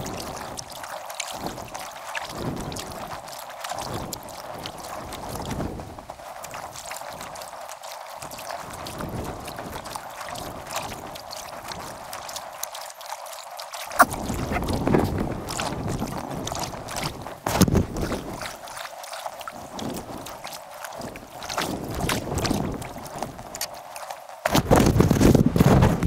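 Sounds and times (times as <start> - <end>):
paddle strokes splashing water: 0.0 - 25.9
wind buffeting microphone: 14.0 - 18.6, 21.0 - 23.6, 24.5 - 26.0.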